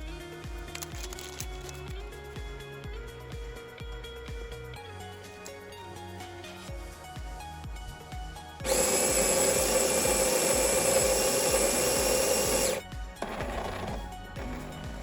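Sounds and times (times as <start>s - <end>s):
background music: 0.0s - 15.0s
coffee machine motor whirring: 8.6s - 15.0s.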